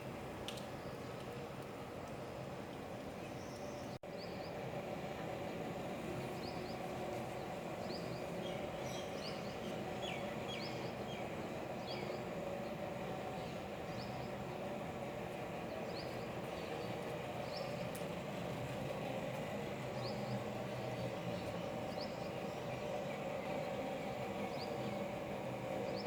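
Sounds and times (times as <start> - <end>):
rain street ambience: 0.0 - 3.4.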